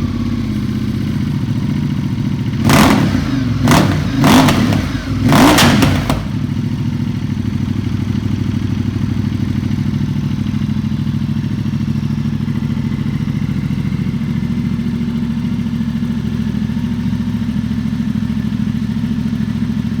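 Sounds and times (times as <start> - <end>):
motorcycle engine idling: 0.0 - 20.0
motorcycle engine rev blip: 2.6 - 7.0.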